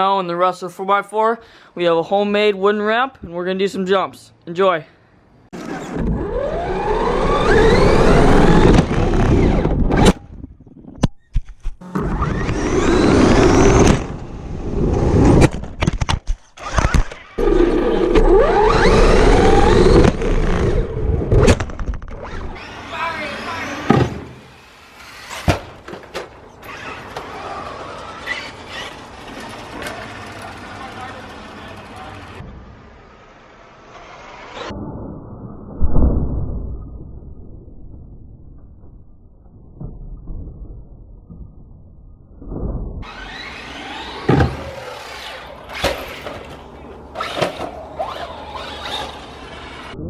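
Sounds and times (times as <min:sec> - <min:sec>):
electric motor whining: 0:06.0 - 0:09.8, 0:17.4 - 0:21.3, 0:22.1 - 0:25.5, 0:43.0 - 0:50.0
toy car landing thud: 0:23.8 - 0:24.4, 0:25.0 - 0:27.5, 0:43.1 - 0:46.6, 0:47.2 - 0:48.2.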